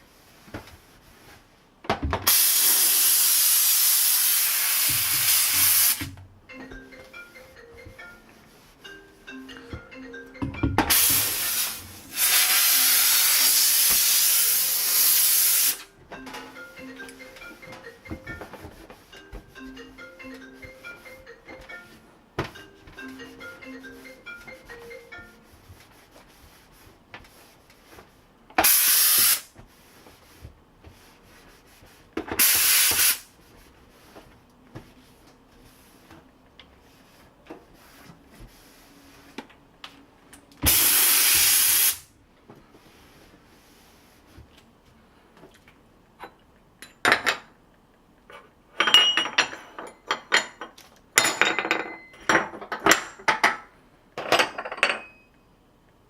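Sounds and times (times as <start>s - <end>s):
steam cleaner jets: 2.3s - 6.2s, 10.9s - 15.8s, 28.6s - 29.5s, 32.4s - 33.2s, 40.6s - 42.1s.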